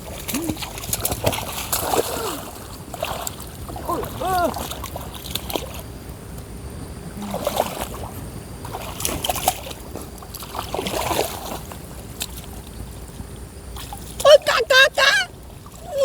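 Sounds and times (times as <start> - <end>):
water splashing and sloshing: 0.0 - 16.0
steady low rumble: 5.8 - 10.8.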